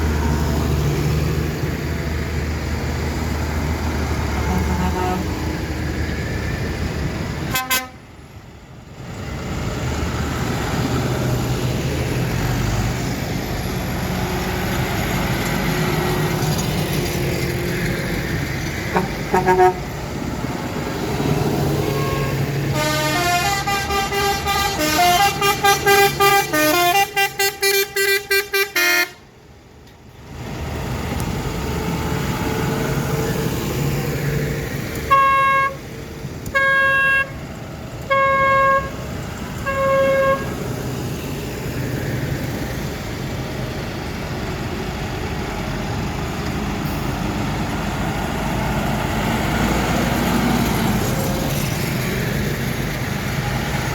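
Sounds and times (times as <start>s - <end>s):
vehicle engines running: 0.0s - 53.9s
musical vehicle horn tune: 4.4s - 5.3s, 7.5s - 8.0s, 18.9s - 19.9s, 21.8s - 29.2s, 35.1s - 35.8s, 36.5s - 37.4s, 38.1s - 39.0s, 39.6s - 40.6s.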